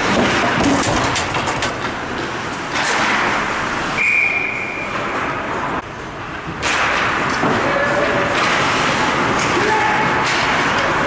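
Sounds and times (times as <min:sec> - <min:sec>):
high whistle blast: 0:04.0 - 0:05.0
hockey sticks and puck clicks: 0:06.5 - 0:11.0.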